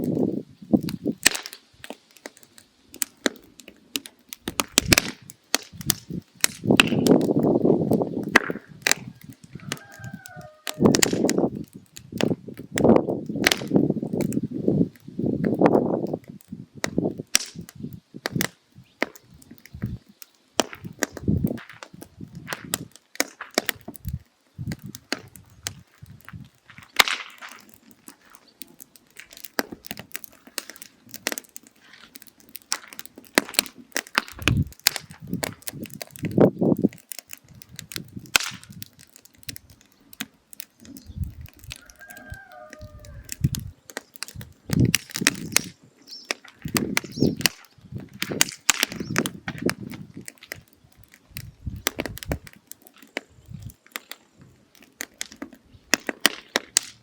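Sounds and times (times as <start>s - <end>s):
firewood crackling and popping: 0.0s - 57.0s.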